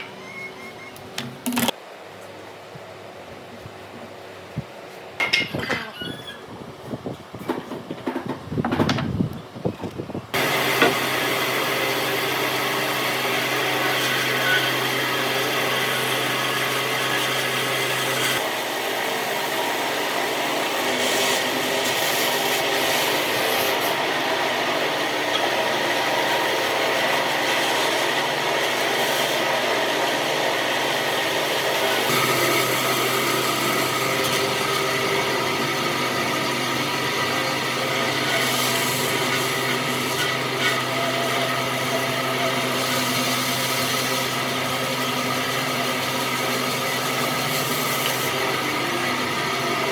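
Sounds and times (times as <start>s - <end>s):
power tool abrading wood: 10.4s - 49.9s.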